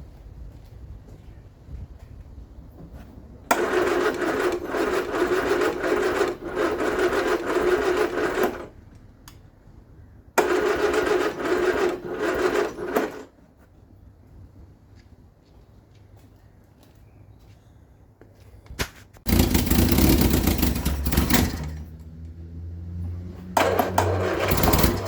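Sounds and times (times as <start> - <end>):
starter motor cranking engine: 3.5 - 8.8, 10.4 - 13.3, 19.3 - 22.3, 23.2 - 25.0.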